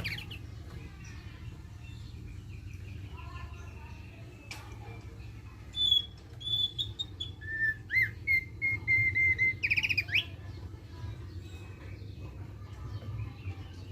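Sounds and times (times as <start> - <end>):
low steady hum: 0.0 - 13.9
bird whistling notes: 5.7 - 10.3.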